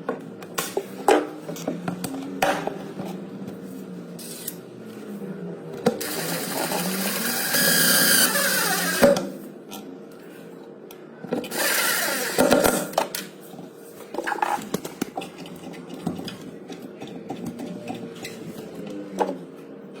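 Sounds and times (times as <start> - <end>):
small power tool motor: 6.0 - 9.2, 11.5 - 12.6.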